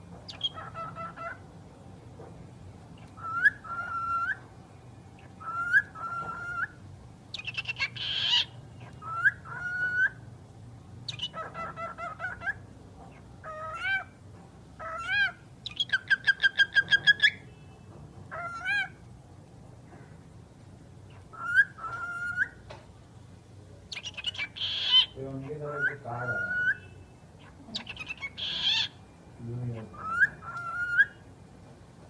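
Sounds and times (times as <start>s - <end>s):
talking bird whistling and calling: 3.1s - 4.4s, 5.4s - 10.2s, 11.1s - 12.6s, 14.8s - 17.5s, 21.1s - 22.6s, 23.9s - 29.0s, 29.6s - 31.2s.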